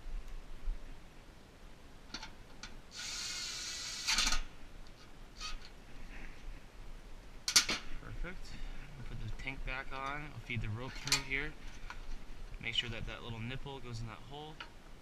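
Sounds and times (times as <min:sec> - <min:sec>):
cordless drill whining: 0:02.9 - 0:04.4
metal clank: 0:10.9 - 0:11.4.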